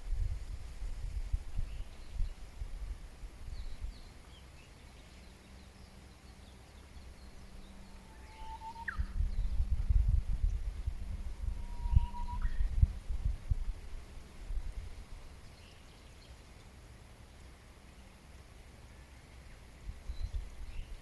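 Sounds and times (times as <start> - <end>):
bird whistling upward sweep: 8.1 - 9.2, 11.5 - 12.7
bird chirps: 8.1 - 9.6.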